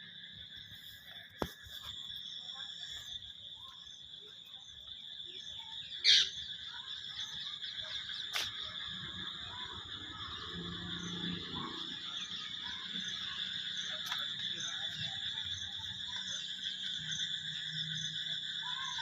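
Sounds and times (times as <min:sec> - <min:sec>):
frogs and insects chorus: 0:00.0 - 0:19.0
loud animal call: 0:06.0 - 0:06.4.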